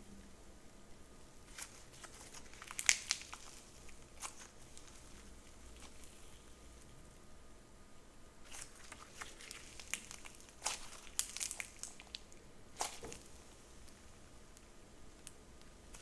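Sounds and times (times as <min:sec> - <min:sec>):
slime crackling and popping: 0:01.5 - 0:06.4, 0:08.4 - 0:16.0.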